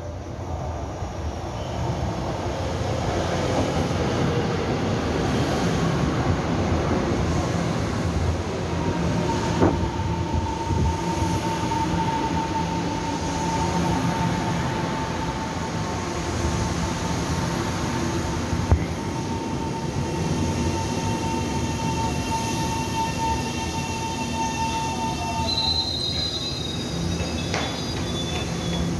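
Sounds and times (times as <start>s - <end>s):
train wheels rumbling on rails: 1.4s - 28.9s
high-pitched squeal: 18.9s - 28.9s.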